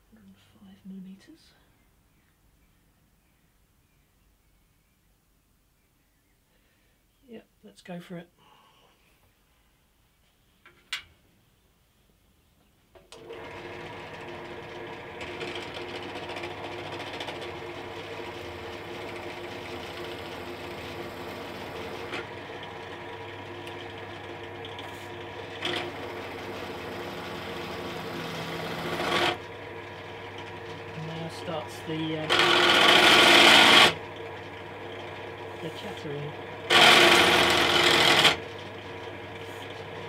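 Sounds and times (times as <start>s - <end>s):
drill press cutting metal: 13.2s - 40.0s.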